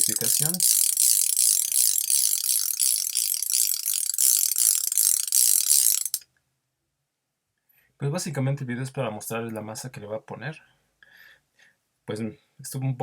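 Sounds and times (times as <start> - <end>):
bicycle hub freewheeling clicks: 0.0 - 6.2.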